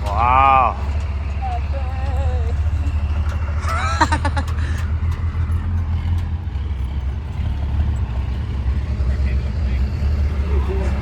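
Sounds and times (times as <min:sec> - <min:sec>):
person calling out: 0:00.0 - 0:02.7
truck engine rumbling: 0:00.0 - 0:11.0.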